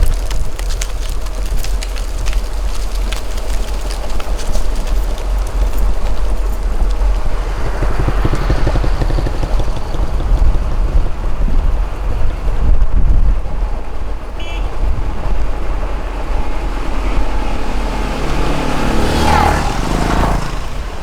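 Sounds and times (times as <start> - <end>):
motorbike engine: 0.0 - 21.0
wind rumble on microphone: 0.0 - 21.0.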